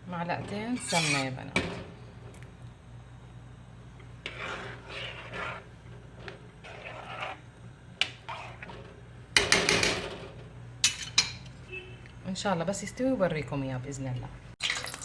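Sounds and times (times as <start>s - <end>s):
spoon scraping a container: 0.7s - 1.4s, 4.2s - 5.7s, 6.6s - 7.4s, 8.0s - 8.7s.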